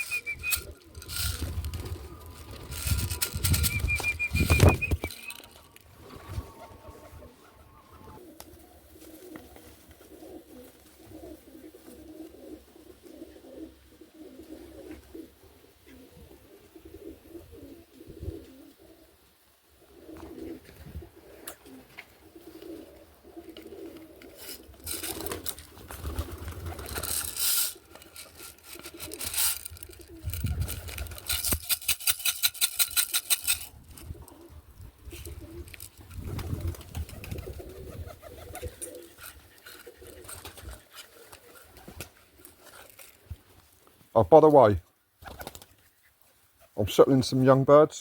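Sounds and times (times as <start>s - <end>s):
pigeons cooing: 0.0s - 43.4s.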